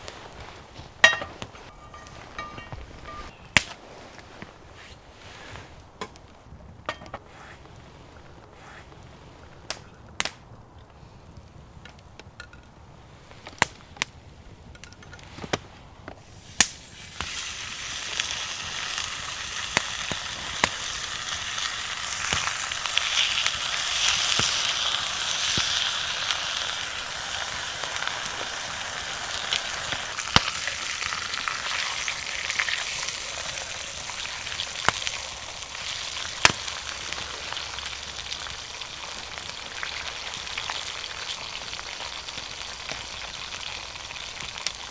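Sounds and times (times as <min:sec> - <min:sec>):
steak sizzling over a fire: 0:16.2 - 0:44.9.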